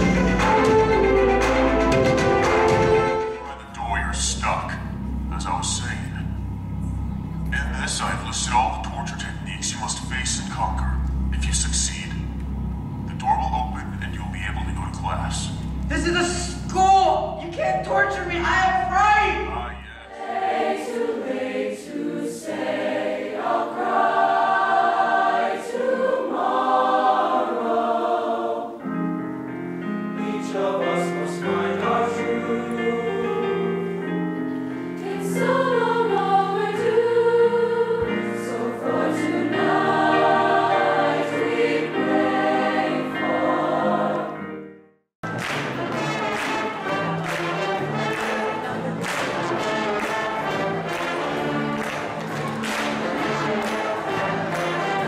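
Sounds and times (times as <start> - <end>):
choir singing: 0.0 - 6.0, 13.2 - 29.2, 30.2 - 44.6, 45.3 - 55.0
voices with brass: 45.6 - 55.0.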